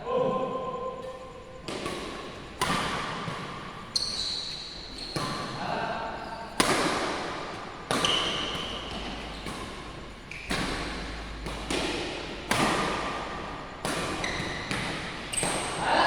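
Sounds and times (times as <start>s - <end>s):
rackets hitting shuttlecock: 1.0s - 16.0s
short high shoe squeaks: 3.9s - 5.5s, 14.2s - 14.7s.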